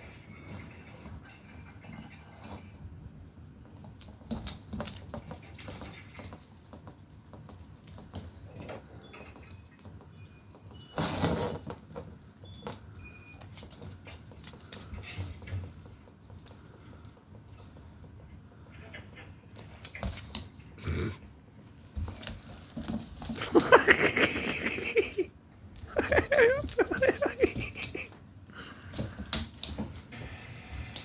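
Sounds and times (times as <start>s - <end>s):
puppy scuffling: 0.3s - 18.6s, 19.2s - 20.8s, 21.6s - 31.0s
puppy claws clicking and scratching: 3.6s - 10.7s, 19.6s - 20.7s, 25.8s - 28.2s.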